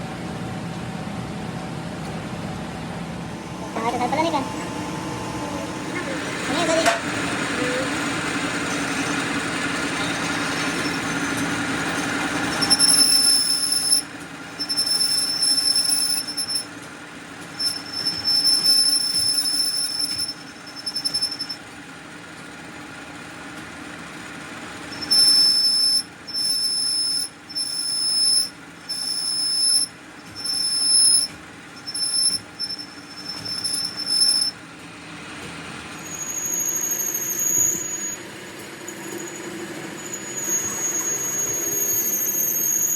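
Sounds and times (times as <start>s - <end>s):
machine hum: 0.0s - 16.7s
high-pitched cutting squeal: 3.4s - 16.8s, 17.5s - 21.6s, 24.9s - 34.6s, 35.8s - 42.9s.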